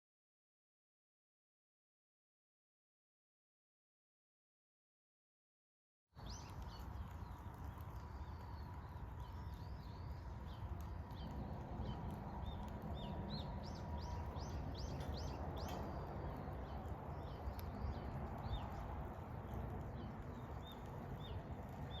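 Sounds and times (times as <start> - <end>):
low outdoor rumble: 6.2 - 22.0
small birds chirping: 6.2 - 22.0.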